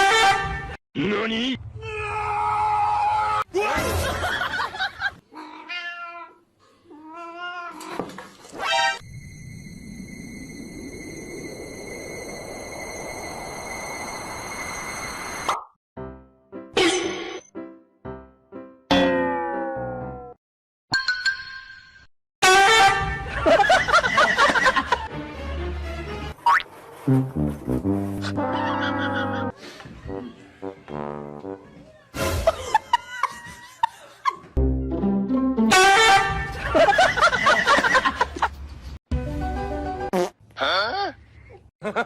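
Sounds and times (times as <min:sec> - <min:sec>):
cat meowing: 0:05.3 - 0:08.0
music: 0:16.0 - 0:16.8, 0:17.4 - 0:18.9, 0:24.8 - 0:26.4, 0:27.1 - 0:28.6, 0:30.1 - 0:32.8, 0:34.6 - 0:36.6, 0:39.1 - 0:40.1.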